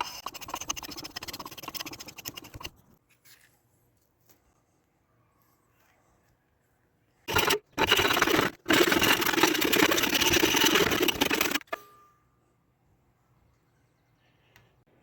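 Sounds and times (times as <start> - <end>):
rasping scrape: 0.0 - 3.0, 7.3 - 11.8.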